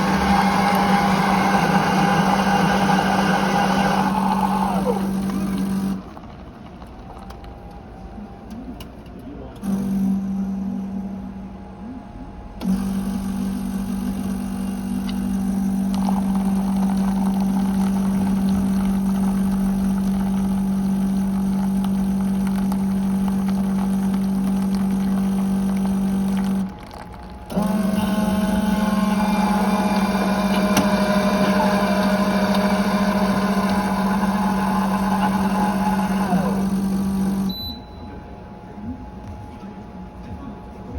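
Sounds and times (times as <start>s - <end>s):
coffee machine pump humming: 0.0s - 11.3s, 12.6s - 38.0s.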